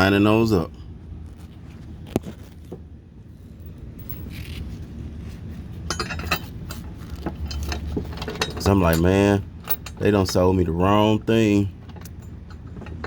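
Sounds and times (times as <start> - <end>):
low steady hum: 0.0 - 13.0
metal bracket and bolts clinking: 5.8 - 11.0, 11.8 - 13.0.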